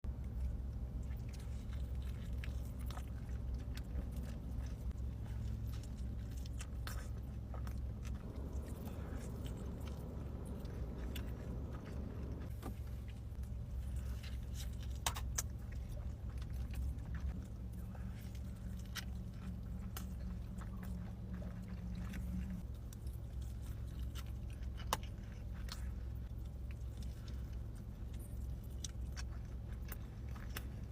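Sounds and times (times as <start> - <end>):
low hum: 0.0 - 30.9
chewing and biting food: 0.1 - 30.9.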